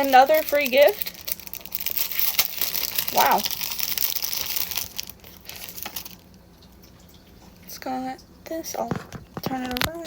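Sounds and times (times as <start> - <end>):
packaging crinkling: 0.0 - 6.4.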